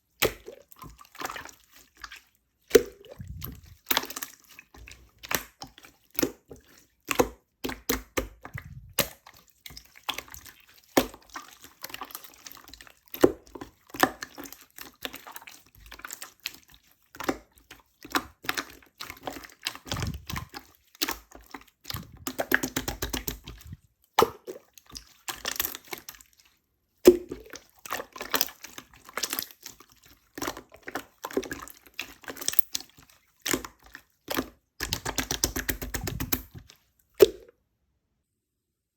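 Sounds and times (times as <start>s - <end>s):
slime squished by hand: 0.2s - 6.5s, 7.1s - 16.2s, 18.1s - 26.3s, 33.4s - 37.5s.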